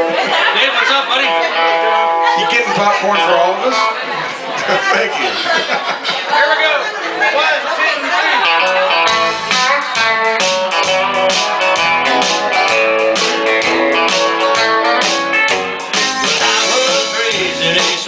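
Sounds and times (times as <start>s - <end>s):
electric guitar lines: 0.0s - 3.9s, 8.5s - 18.0s
strummed guitar: 0.0s - 4.0s, 8.4s - 18.0s
bass guitar: 0.0s - 4.1s, 8.2s - 18.0s
drums keeping a steady beat: 8.4s - 18.0s.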